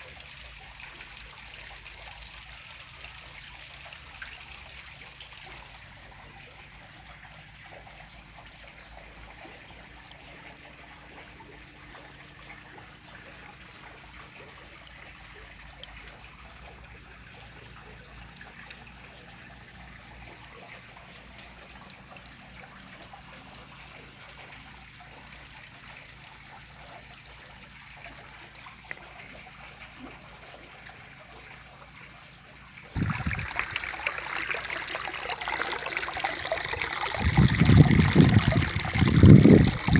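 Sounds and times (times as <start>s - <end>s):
spring water trickling: 33.0s - 39.9s.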